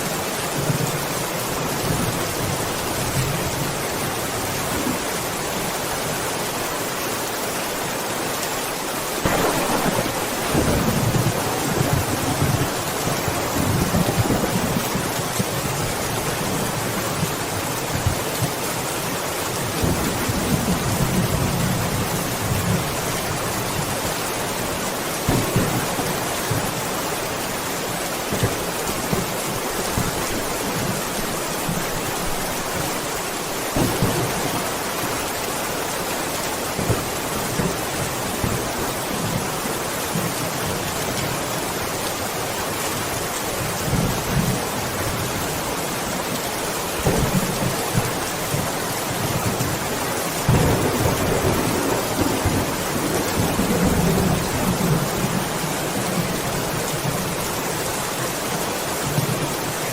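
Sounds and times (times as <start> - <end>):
steady rain falling: 0.0 - 59.9
distant thunder rumbling: 9.2 - 16.0, 25.2 - 32.7, 33.4 - 35.4.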